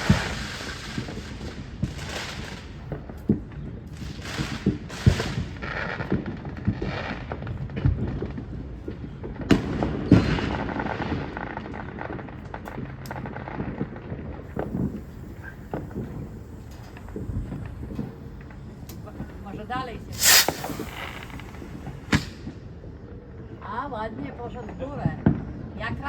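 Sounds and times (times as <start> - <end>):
fireworks bangs and cracks: 0.0 - 23.0
hissing crackle of fireworks: 0.0 - 23.5.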